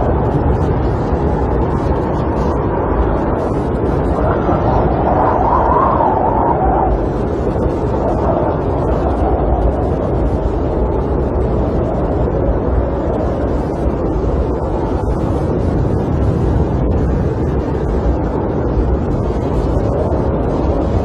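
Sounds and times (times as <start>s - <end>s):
storm wind against camper: 0.0s - 21.0s.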